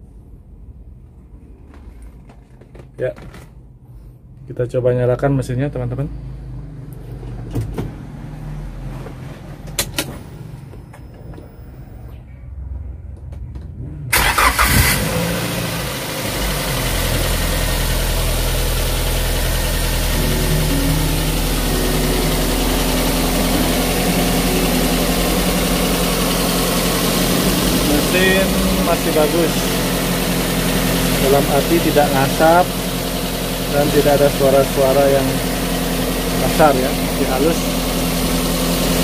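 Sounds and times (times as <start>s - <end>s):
car engine idling: 12.8s - 39.0s
engine starter cranking: 14.1s - 15.3s.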